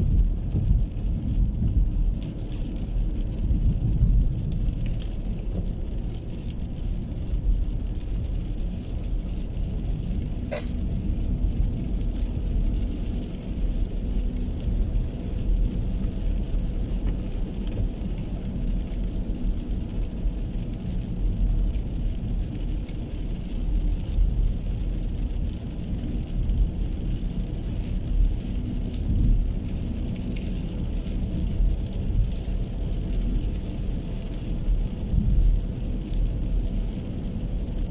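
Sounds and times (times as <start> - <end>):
heavy rain falling: 0.0 - 37.9
low rumble: 0.0 - 37.9.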